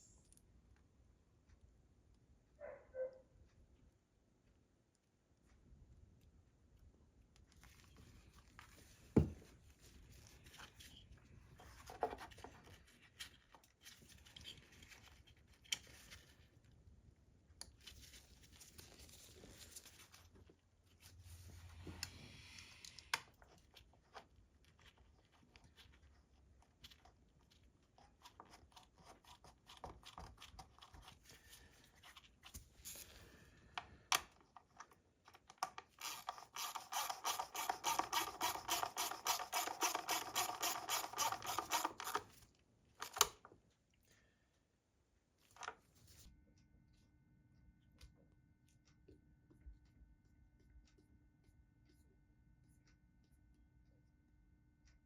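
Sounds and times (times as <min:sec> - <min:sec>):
hands handling tools and parts: 0:34.1 - 0:43.4.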